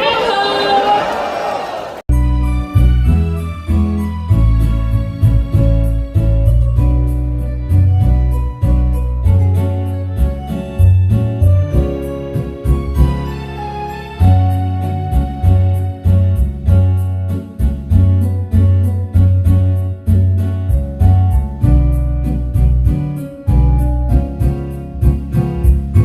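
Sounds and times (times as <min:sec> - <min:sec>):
music with deep bass beat: 0:15.1 - 0:26.0.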